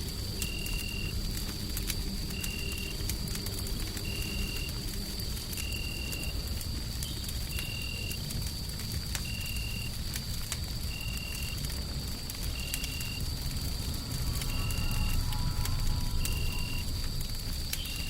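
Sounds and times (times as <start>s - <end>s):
low rumble of white noise: 0.0s - 18.0s
wood fire crackling and popping: 0.0s - 18.0s
thin high whine: 13.8s - 17.1s.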